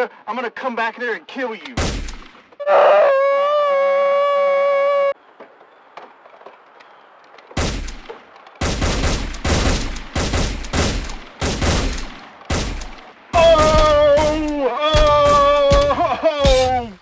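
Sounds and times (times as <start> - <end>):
gunshots: 1.8 - 2.6, 7.6 - 16.2.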